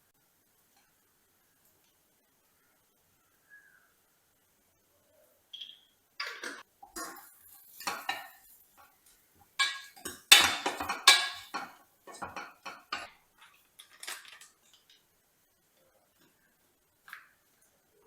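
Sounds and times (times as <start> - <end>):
dishes and cutlery clattering: 6.2 - 8.9, 9.6 - 14.9.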